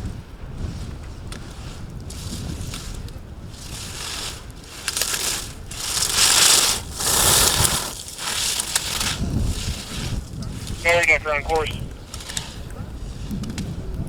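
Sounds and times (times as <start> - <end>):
skis scraping on snow: 0.0 - 14.0.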